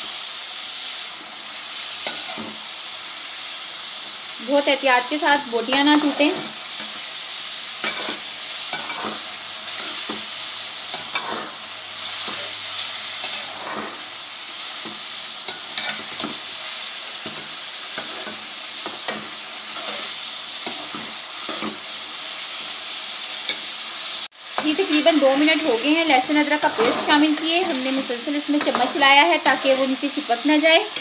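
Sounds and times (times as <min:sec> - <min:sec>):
chicken sizzling in hot oil: 0:00.0 - 0:31.0
spoon scraping a pan: 0:07.8 - 0:10.3, 0:10.9 - 0:14.1, 0:14.8 - 0:16.6, 0:17.2 - 0:23.8, 0:24.5 - 0:30.1.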